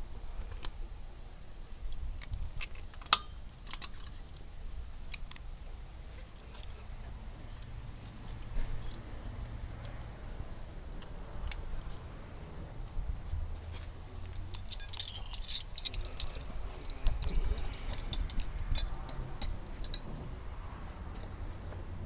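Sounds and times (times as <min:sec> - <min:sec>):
metal tools clinking: 0:14.1 - 0:20.2.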